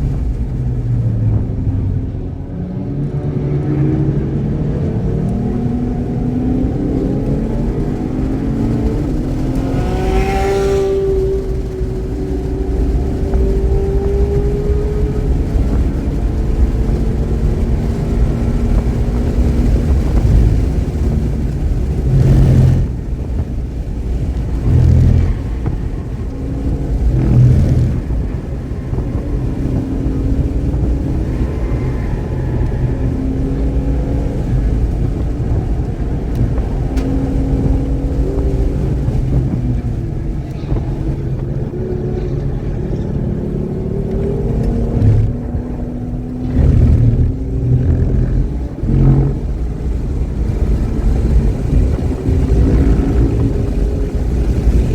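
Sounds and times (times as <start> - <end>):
race car engine revving: 0.0 - 54.9
heavy low thumps: 19.5 - 31.2, 44.7 - 50.8.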